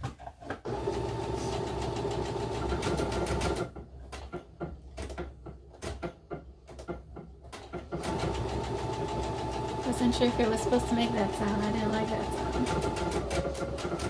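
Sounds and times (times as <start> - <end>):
sewing machine clicks and knocks: 1.7 - 9.7, 12.5 - 14.0
sewing machine motor running: 8.0 - 14.0.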